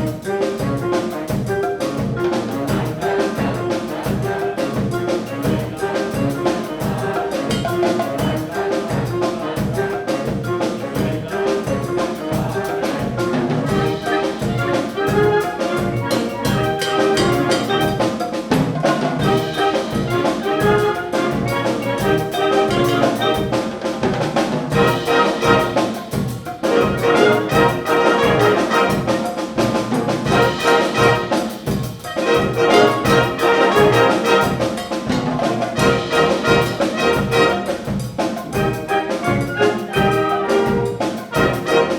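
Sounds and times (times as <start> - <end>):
percussion beat: 0.0 - 41.9
trumpets and trombones: 0.0 - 41.9.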